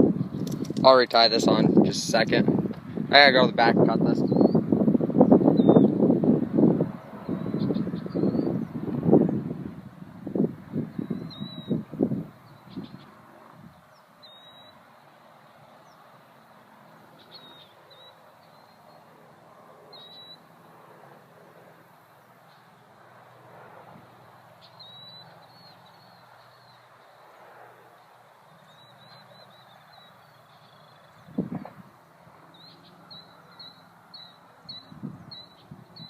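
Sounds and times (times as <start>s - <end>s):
bird chirping: 4.2s - 4.6s, 5.2s - 6.0s, 7.0s - 9.4s, 10.9s - 13.2s, 13.9s - 15.0s, 17.0s - 19.1s, 19.9s - 20.5s, 24.6s - 27.4s, 28.5s - 31.5s, 32.5s - 36.0s.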